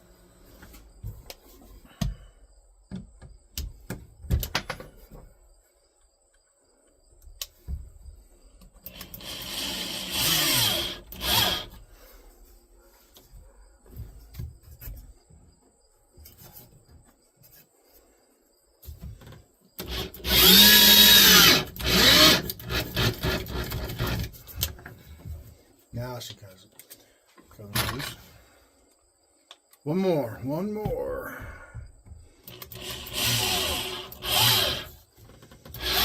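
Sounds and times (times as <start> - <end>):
drill motor spinning: 8.8 - 11.8, 19.8 - 24.3, 32.5 - 35.0, 35.6 - 36.0.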